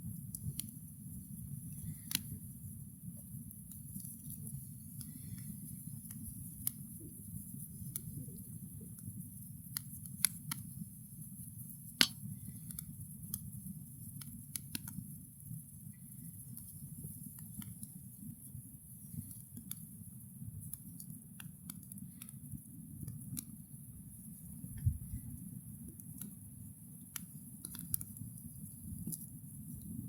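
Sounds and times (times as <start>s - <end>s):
fire crackling and popping: 0.0s - 30.0s
low steady rumble: 24.0s - 26.0s.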